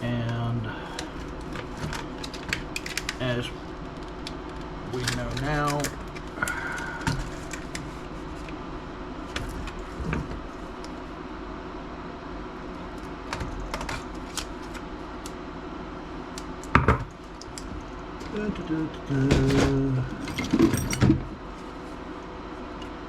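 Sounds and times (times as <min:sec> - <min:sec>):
faint steady hum: 0:00.0 - 0:23.0
parts clattering: 0:01.0 - 0:08.6, 0:19.2 - 0:21.4.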